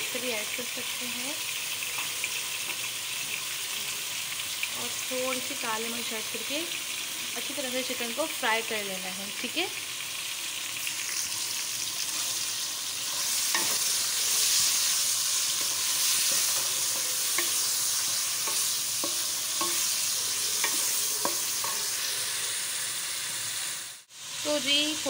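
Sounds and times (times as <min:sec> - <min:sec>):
food sizzling in hot oil: 0:00.0 - 0:25.0
spatula scraping and knocking pan: 0:13.1 - 0:22.1.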